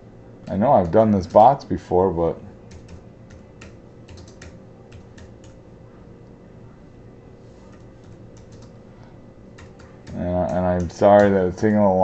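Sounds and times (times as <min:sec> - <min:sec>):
typing on computer keyboard: 0:02.7 - 0:05.6, 0:07.7 - 0:08.8, 0:09.6 - 0:11.4.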